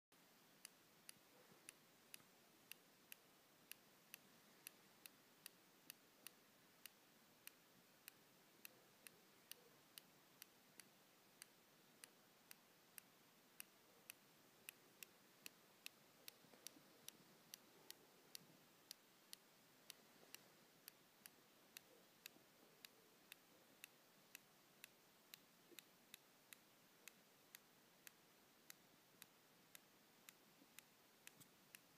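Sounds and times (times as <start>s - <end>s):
low hiss: 0.1s - 31.9s
faint sharp clicking: 0.2s - 31.9s.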